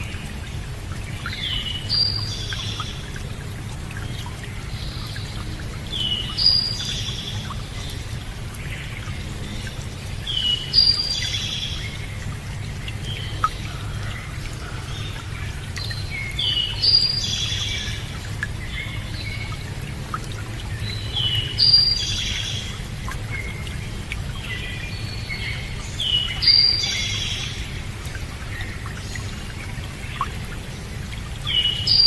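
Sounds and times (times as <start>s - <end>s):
running water: 0.0s - 32.0s.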